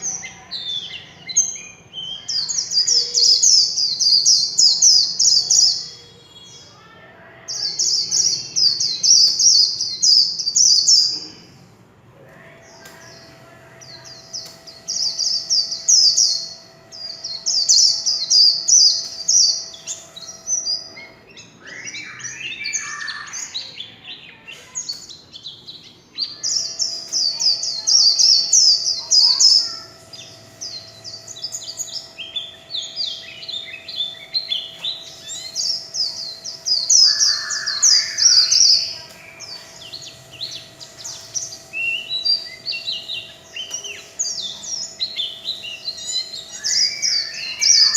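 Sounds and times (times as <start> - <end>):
bird twittering warble: 26.2 - 47.9.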